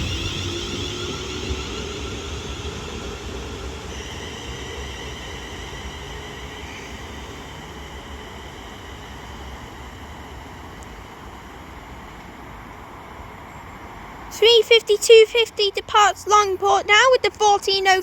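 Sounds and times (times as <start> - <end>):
electric train motors whining: 0.0 - 12.2
train low rumble: 0.0 - 18.0.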